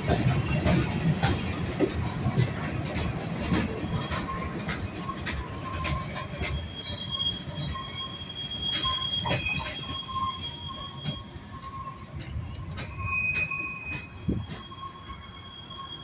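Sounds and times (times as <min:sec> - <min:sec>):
wheels clanking on rails: 0:00.0 - 0:16.0
high wheel squeal: 0:03.6 - 0:16.0
lower squealing tone: 0:05.8 - 0:16.0.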